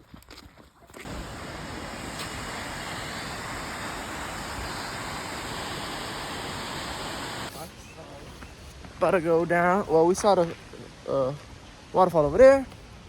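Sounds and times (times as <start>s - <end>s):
waterfall rushing: 1.0s - 7.5s.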